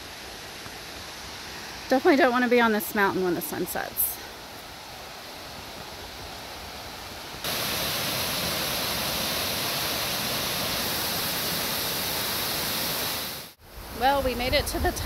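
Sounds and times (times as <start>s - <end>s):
waterfall rushing: 5.8s - 14.1s.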